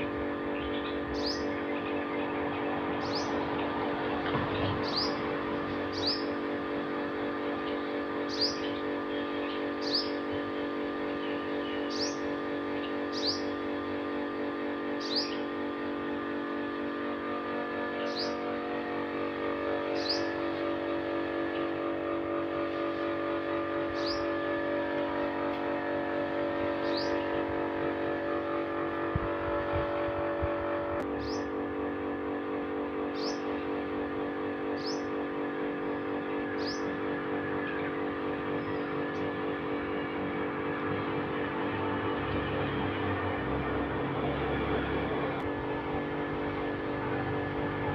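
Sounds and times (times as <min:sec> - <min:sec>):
engine-like drone: 0:00.0 - 0:47.9
bird chirping: 0:00.5 - 0:03.4, 0:04.5 - 0:06.4, 0:08.2 - 0:10.2, 0:11.2 - 0:12.2, 0:12.8 - 0:13.5, 0:15.0 - 0:15.4, 0:19.9 - 0:20.3, 0:26.8 - 0:27.3, 0:33.2 - 0:33.5, 0:36.6 - 0:37.0.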